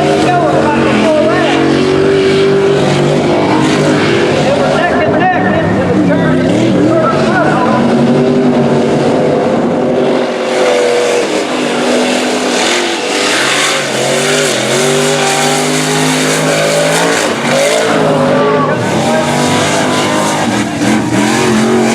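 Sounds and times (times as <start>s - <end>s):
engine revving loudly: 0.0s - 21.9s.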